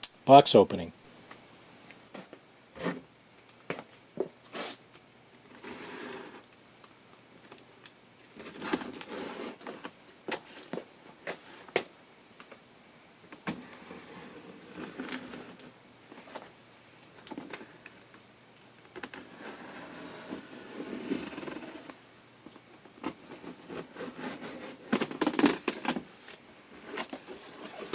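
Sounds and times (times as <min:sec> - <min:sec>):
cardboard box rustling and scraping: 0:08.4 - 0:11.8, 0:19.2 - 0:21.9, 0:23.0 - 0:27.9.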